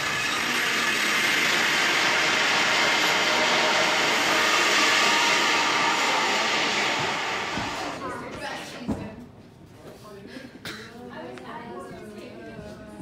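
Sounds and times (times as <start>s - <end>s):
steady rushing noise: 0.0s - 8.3s.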